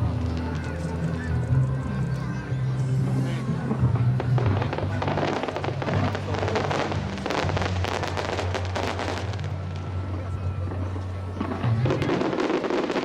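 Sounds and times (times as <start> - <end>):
background music with low notes: 0.0 - 13.0
fireworks crackling and popping: 2.8 - 13.0.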